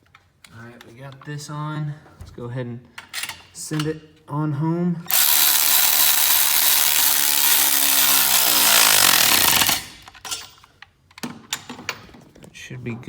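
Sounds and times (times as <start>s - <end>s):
impact wrench hammering: 5.1s - 10.2s.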